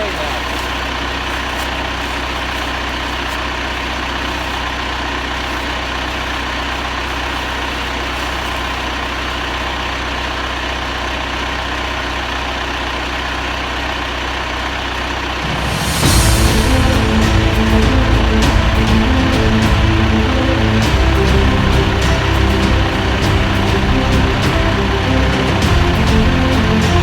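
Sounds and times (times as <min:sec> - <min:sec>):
engine running steadily: 0:00.0 - 0:27.0
music: 0:15.4 - 0:27.0.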